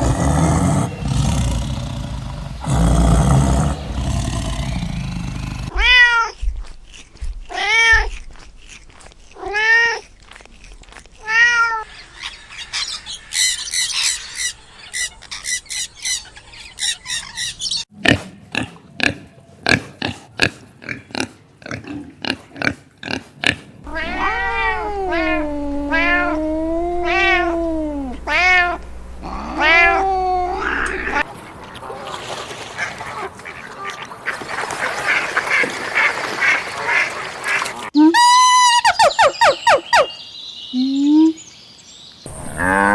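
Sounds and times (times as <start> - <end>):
cat chirping: 23.9 - 31.2
cat meowing: 23.9 - 31.2.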